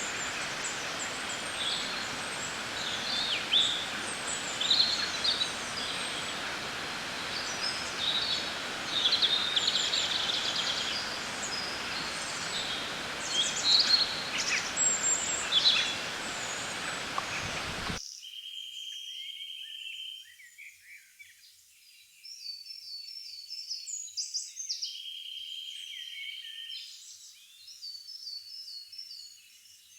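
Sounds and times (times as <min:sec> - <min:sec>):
birds chirping and trilling: 0:00.0 - 0:18.0
outdoor hiss: 0:00.0 - 0:18.0.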